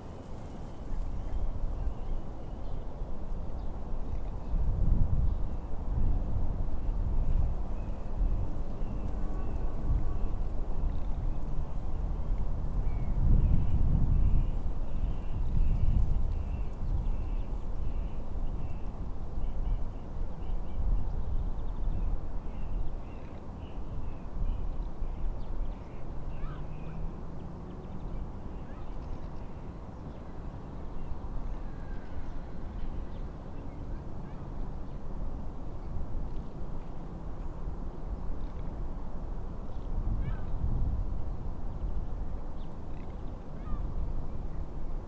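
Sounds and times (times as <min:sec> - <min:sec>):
wind rumbling on microphone: 0:00.0 - 0:23.1, 0:35.1 - 0:45.0.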